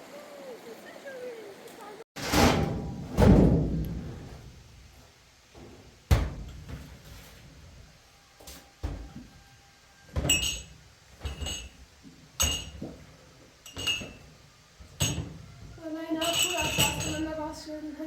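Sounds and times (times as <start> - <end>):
sharp knocks and thuds: 2.2 - 4.7, 5.5 - 7.3, 8.8 - 9.4
metallic clanks ringing: 10.2 - 11.8, 12.4 - 12.8, 13.6 - 14.3, 14.9 - 15.4, 16.1 - 17.4.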